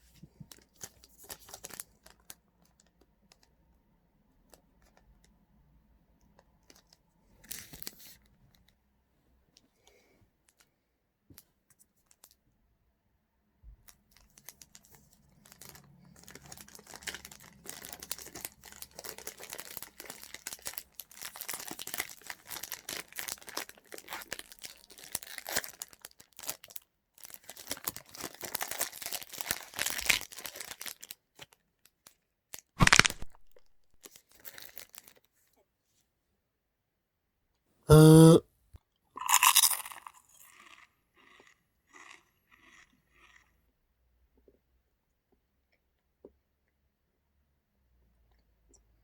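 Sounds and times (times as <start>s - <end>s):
wrapper tearing and crinkling: 15.5s - 31.2s, 32.8s - 33.7s.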